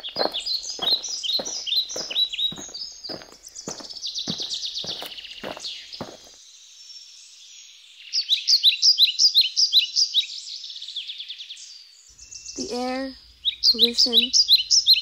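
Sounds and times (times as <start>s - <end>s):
faint high bird trill: 0.0s - 6.3s, 11.5s - 15.0s
bird chirps: 0.0s - 6.4s, 7.5s - 15.0s.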